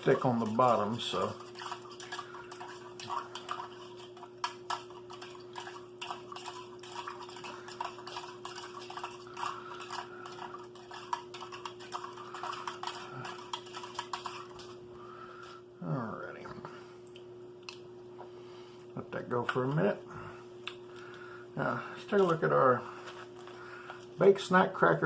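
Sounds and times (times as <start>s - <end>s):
plastic spoon stirring drink: 0.0s - 14.8s.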